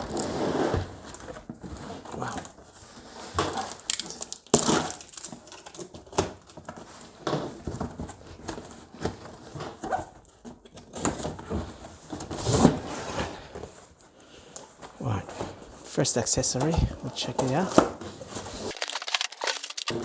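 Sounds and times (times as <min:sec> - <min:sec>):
packaging rustling and parts clicking: 0:03.5 - 0:11.4, 0:16.4 - 0:20.0.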